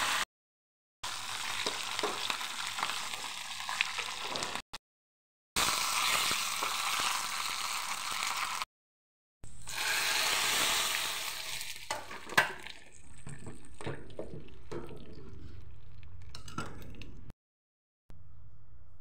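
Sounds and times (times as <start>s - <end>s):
spices sizzling in hot oil: 1.1s - 4.6s, 5.6s - 8.7s, 9.6s - 12.8s
ladle stirring and knocking in pot: 11.9s - 17.3s.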